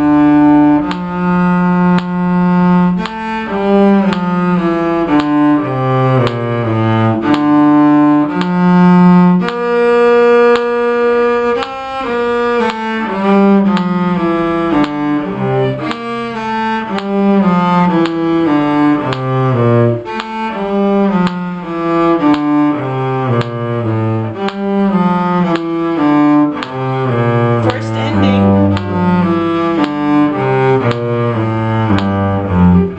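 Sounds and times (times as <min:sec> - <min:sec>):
bowed strings playing a round: 0:00.0 - 0:32.9.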